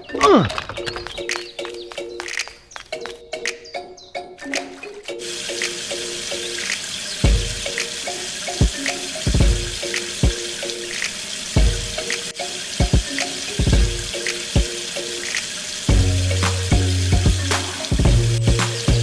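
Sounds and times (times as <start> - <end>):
running water rushing: 4.6 - 16.7
music with heavy bass beats: 15.9 - 19.0.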